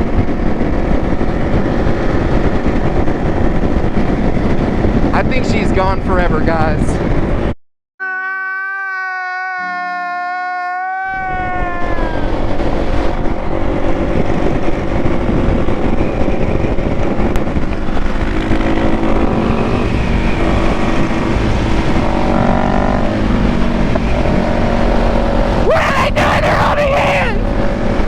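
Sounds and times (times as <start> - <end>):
road and wind rush: 0.0 - 7.6, 10.8 - 28.0
vehicle engine running: 12.2 - 25.7.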